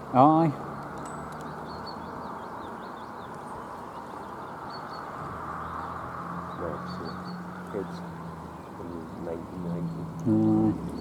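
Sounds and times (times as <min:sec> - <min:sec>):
faint songbird chirps: 0:00.0 - 0:11.0.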